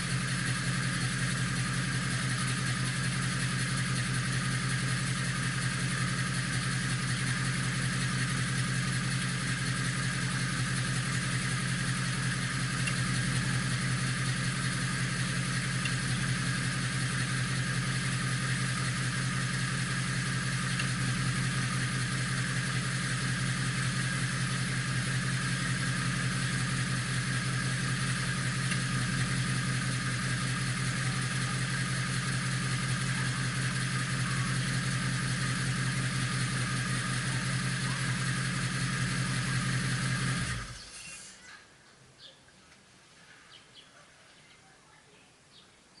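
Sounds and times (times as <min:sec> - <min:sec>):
car engine idling: 0:00.0 - 0:41.4.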